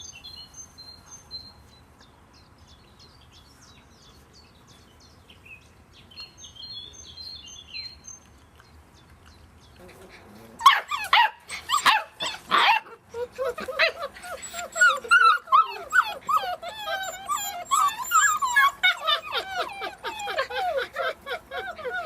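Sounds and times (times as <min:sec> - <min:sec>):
puppies whimpering and yelping: 0:10.0 - 0:22.0.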